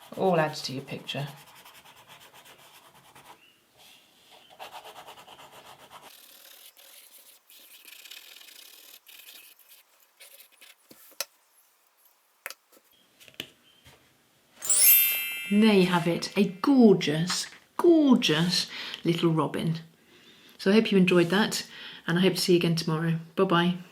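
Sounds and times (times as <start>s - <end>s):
pencil scratching on paper: 0.0s - 3.4s, 4.3s - 11.2s.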